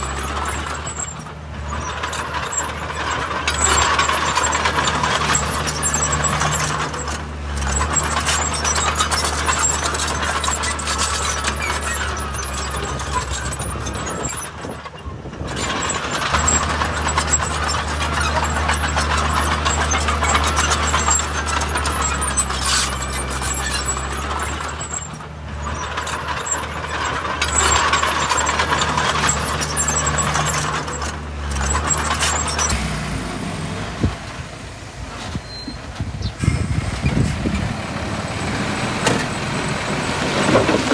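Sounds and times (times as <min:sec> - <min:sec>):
heavy diesel machinery under load: 0:32.5 - 0:38.2.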